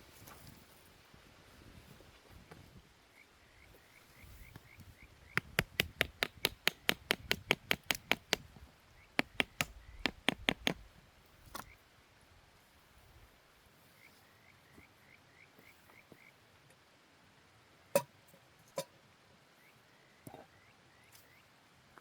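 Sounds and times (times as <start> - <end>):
sharp taps: 5.4 - 8.4, 9.2 - 10.8.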